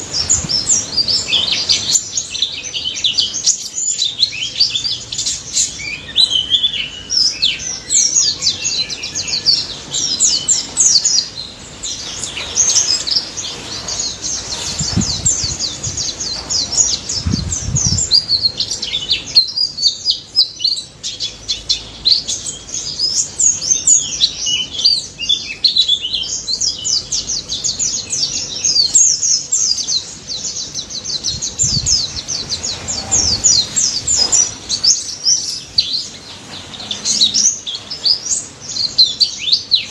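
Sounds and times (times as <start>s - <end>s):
bird chirping and trilling: 0.0s - 39.9s
low thumps: 14.7s - 18.5s.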